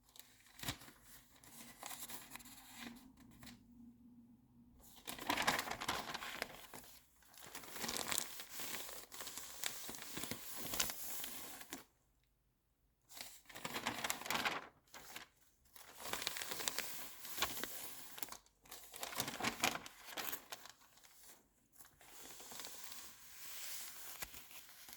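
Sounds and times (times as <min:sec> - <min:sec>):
magazine pages rustling: 0:05.0 - 0:11.9, 0:13.2 - 0:24.9.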